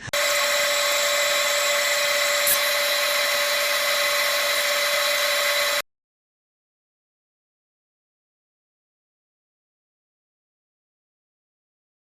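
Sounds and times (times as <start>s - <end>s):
disc sander sanding wood: 0.1s - 5.8s.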